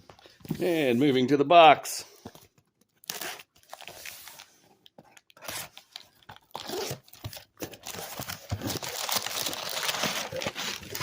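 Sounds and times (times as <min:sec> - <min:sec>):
cardboard box tearing: 0:06.5 - 0:11.0.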